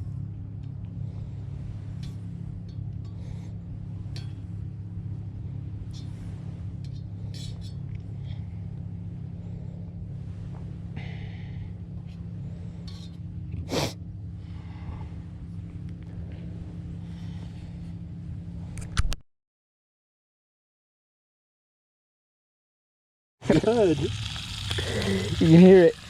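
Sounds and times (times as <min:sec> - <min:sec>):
steady low hum: 0:00.0 - 0:19.2, 0:23.4 - 0:26.0
campfire crackling: 0:23.4 - 0:26.0.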